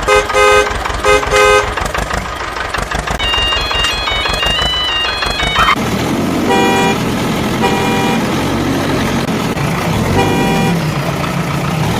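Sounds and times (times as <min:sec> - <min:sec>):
vehicle engine running: 0:00.0 - 0:11.9
horn short toots: 0:10.1 - 0:10.8.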